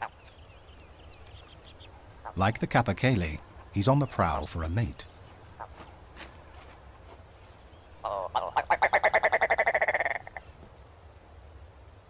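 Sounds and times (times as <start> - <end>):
ptarmigan croaking rattle call: 2.0 - 5.8, 8.0 - 10.4.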